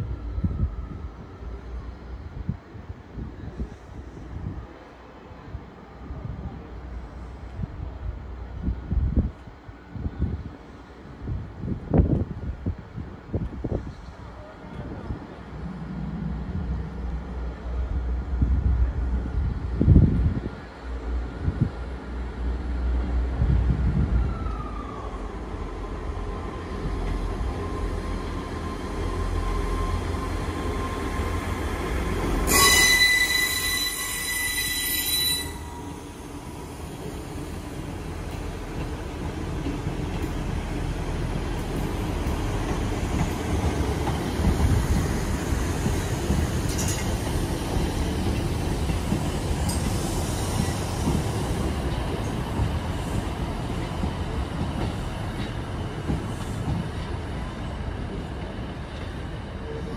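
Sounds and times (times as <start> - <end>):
diesel trains rumbling: 0.0 - 59.9
high-pitched wheel squeal: 32.5 - 36.0.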